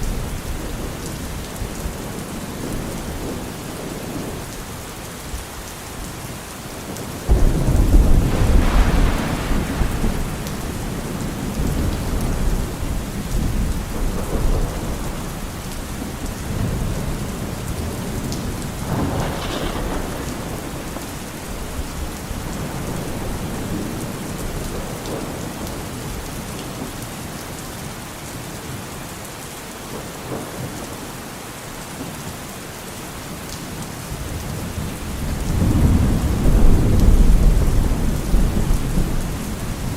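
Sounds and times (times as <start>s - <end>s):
steady rain: 0.0s - 39.9s
thunder rumbling: 7.2s - 26.3s, 34.2s - 39.9s.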